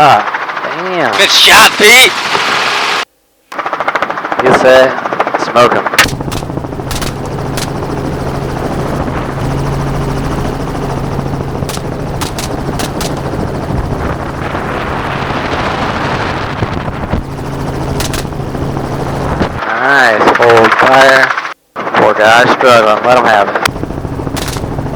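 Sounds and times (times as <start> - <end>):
helicopter rotor and engine: 0.0 - 24.9
rifle shots: 6.0 - 7.8, 11.6 - 14.1, 17.9 - 18.4, 24.3 - 24.8.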